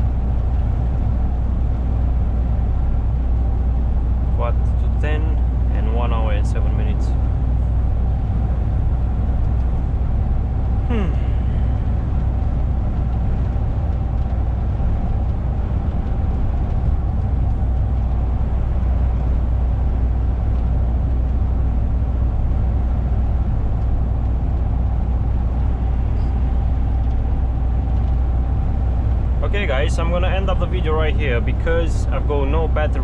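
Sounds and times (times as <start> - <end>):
road noise: 0.0 - 33.0
truck engine drone in cab: 0.0 - 33.0.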